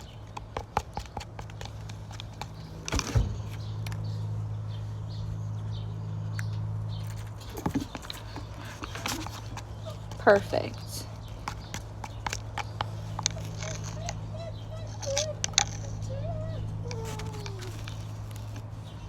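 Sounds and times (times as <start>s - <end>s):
steady low hum: 0.0s - 19.0s
slime being stirred: 8.2s - 16.0s.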